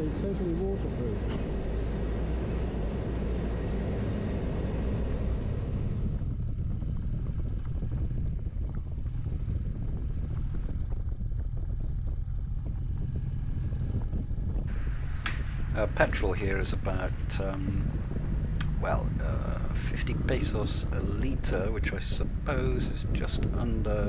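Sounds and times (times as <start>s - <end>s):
wind rumble on microphone: 2.8s - 24.0s
motorcycle engine running: 14.7s - 24.0s.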